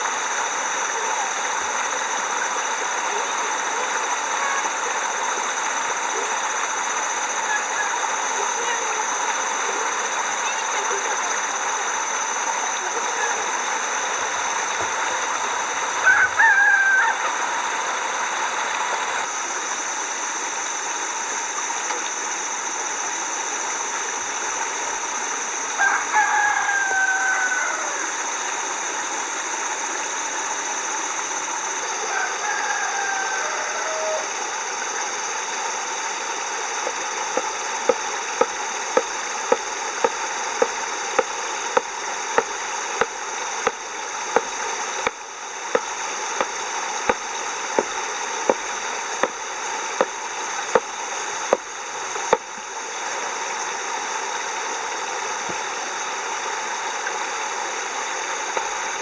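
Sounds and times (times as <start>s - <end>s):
rooster crowing: 16.0s - 17.6s, 25.8s - 28.4s, 32.0s - 34.4s
steady rushing hiss: 26.8s - 59.0s
regular sharp knocks: 36.8s - 49.4s, 50.0s - 50.9s.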